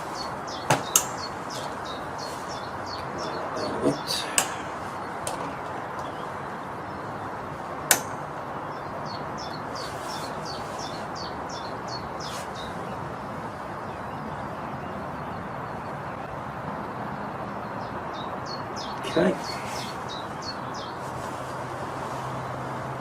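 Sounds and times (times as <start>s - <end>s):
small bird chirping: 0.0s - 7.3s, 7.9s - 13.0s, 17.7s - 21.5s
steady background hiss: 0.0s - 17.8s, 18.6s - 23.0s.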